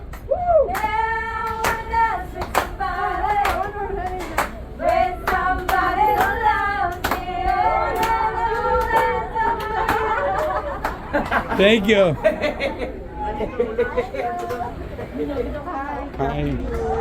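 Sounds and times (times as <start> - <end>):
hand claps: 0.1 - 11.4
people singing: 0.6 - 11.4, 13.7 - 17.0.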